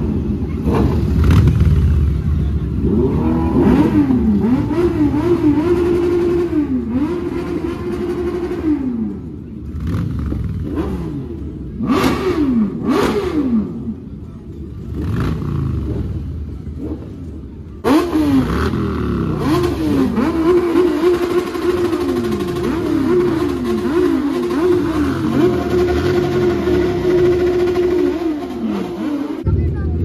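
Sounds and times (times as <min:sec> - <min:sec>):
motorcycle engines revving: 0:00.0 - 0:30.0.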